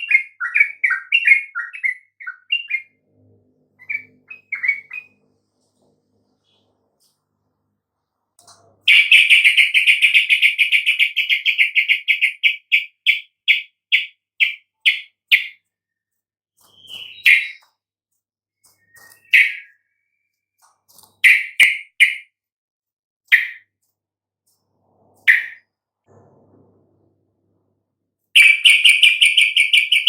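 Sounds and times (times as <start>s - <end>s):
bird chattering trill: 28.4s - 30.0s.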